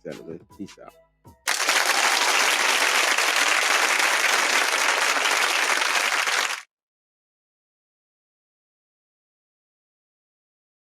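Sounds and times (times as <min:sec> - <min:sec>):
crowd clapping and cheering: 0:01.5 - 0:06.7.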